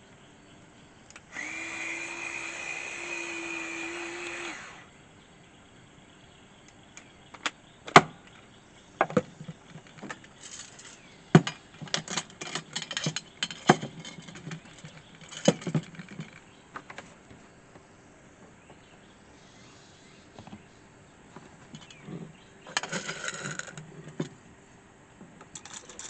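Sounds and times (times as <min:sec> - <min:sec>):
coffee gear clinking and knocking: 0:09.0 - 0:16.5, 0:21.7 - 0:24.3, 0:25.5 - 0:26.0.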